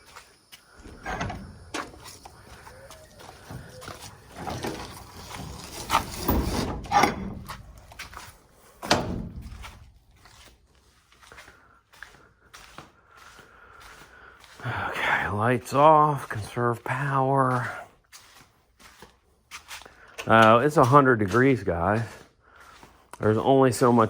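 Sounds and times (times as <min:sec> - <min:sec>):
rustling: 0:00.7 - 0:10.8
knocks and clicks of handling: 0:00.8 - 0:09.8.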